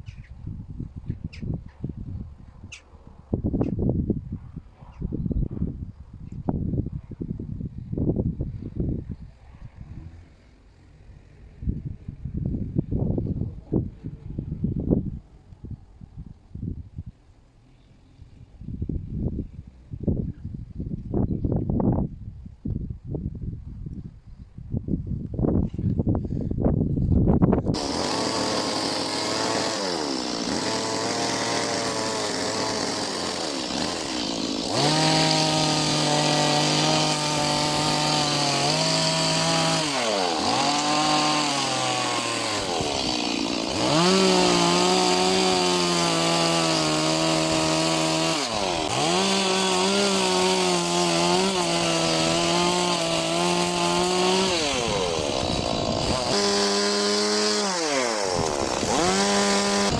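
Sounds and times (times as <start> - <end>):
chainsaw cutting wood: 27.7 - 59.9.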